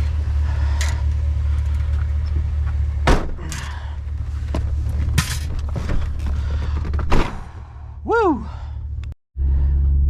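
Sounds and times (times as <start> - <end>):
truck engine idling: 0.0 - 6.9.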